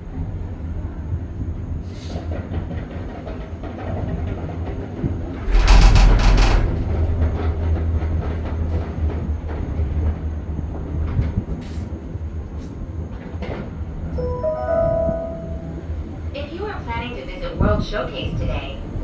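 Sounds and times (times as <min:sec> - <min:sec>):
gondola cabin hum and rumble: 0:00.0 - 0:13.4, 0:14.2 - 0:19.0
loud rattling clatter: 0:05.1 - 0:09.1
scattered knocks: 0:05.3 - 0:08.3
announcement chime tones: 0:14.2 - 0:16.2.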